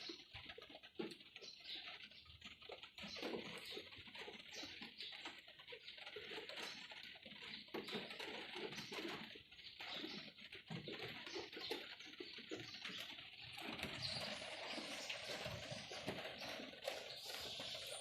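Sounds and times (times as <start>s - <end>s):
rain falling: 7.7s - 18.0s.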